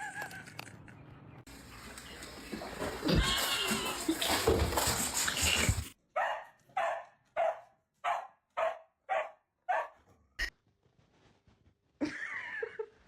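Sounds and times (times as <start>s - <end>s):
dog barking: 6.2s - 10.0s.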